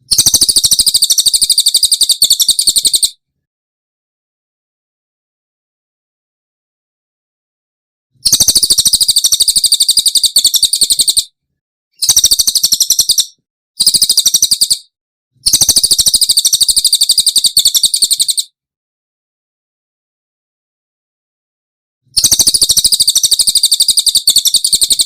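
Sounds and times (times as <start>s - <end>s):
songbird fast dry trill: 0.1s - 3.2s, 8.2s - 11.2s, 12.0s - 14.9s, 15.5s - 18.5s, 22.2s - 25.0s.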